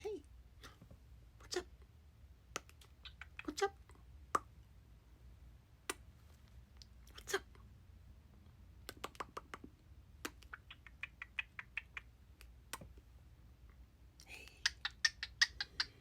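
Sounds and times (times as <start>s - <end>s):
bird clicks and chirps: 2.8s - 3.6s, 10.3s - 12.1s, 14.6s - 16.0s.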